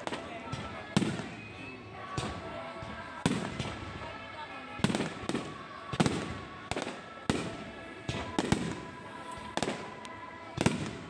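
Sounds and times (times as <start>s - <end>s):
fireworks bangs: 0.0s - 2.5s, 4.8s - 11.0s.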